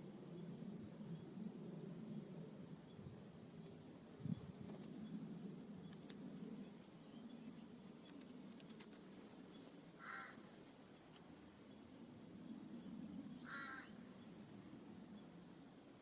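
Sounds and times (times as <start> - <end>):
crow cawing: 10.0 - 10.5, 13.4 - 14.1.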